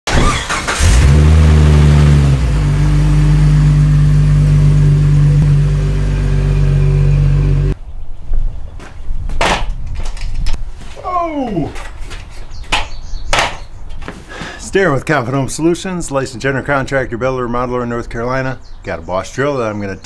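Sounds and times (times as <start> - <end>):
car engine starting and idling: 0.1 - 7.8.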